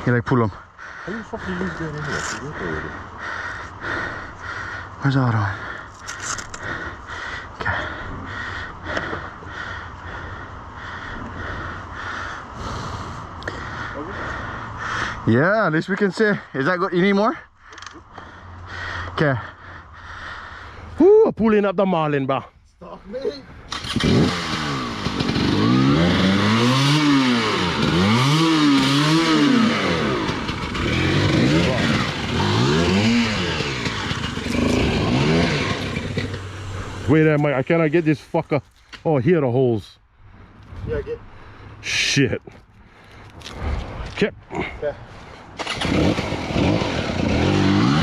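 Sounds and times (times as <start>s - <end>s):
heavy rhythmic panting: 0.3s - 15.2s, 17.3s - 21.0s
dirt bike engine revving: 23.7s - 37.4s, 45.6s - 48.0s.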